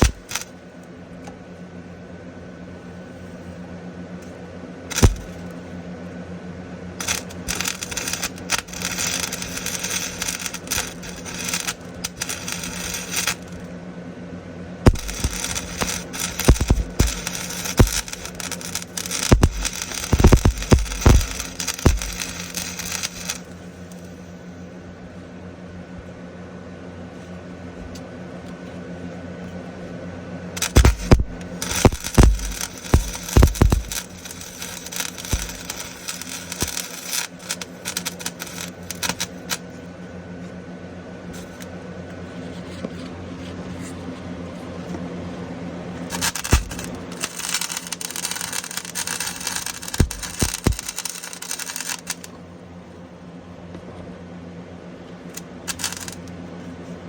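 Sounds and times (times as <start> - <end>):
welder arc crackling: 0.0 - 0.5, 4.9 - 5.6, 7.0 - 13.8, 14.8 - 24.1, 30.6 - 39.7, 46.0 - 52.4, 55.4 - 56.4
steady hum: 0.0 - 57.0.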